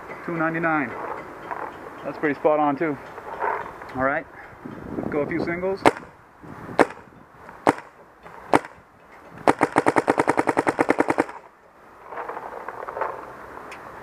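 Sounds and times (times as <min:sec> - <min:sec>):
paintball marker firing: 0:05.8 - 0:06.1, 0:06.8 - 0:07.0, 0:07.6 - 0:07.9, 0:08.5 - 0:08.8, 0:09.4 - 0:11.4.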